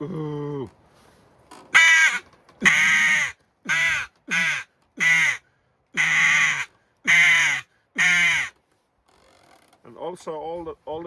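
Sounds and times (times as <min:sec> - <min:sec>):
mouth-blown crow call caws: 0:01.7 - 0:08.6.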